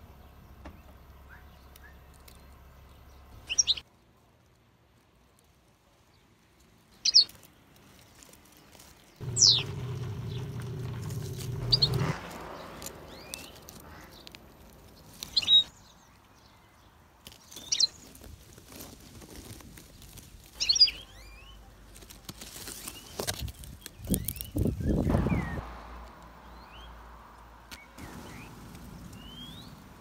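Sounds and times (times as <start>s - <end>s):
small birds chirping: 0.0s - 3.8s, 5.9s - 18.8s, 19.8s - 25.8s, 26.4s - 30.0s
low steady hum: 9.2s - 12.1s.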